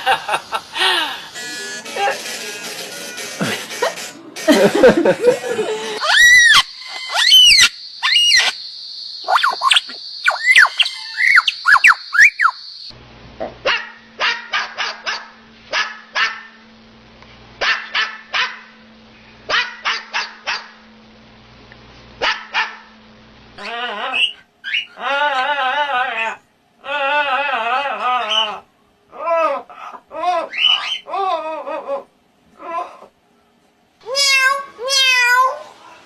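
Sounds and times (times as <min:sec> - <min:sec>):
steady low hum: 0:00.0 - 0:06.0
wavering pitched voice: 0:01.0 - 0:02.3
rising and falling squealing calls: 0:06.0 - 0:12.7, 0:23.6 - 0:26.4, 0:27.2 - 0:28.7, 0:29.8 - 0:31.1
dog barking: 0:13.6 - 0:16.6, 0:17.6 - 0:18.8, 0:19.5 - 0:20.8, 0:22.2 - 0:22.9.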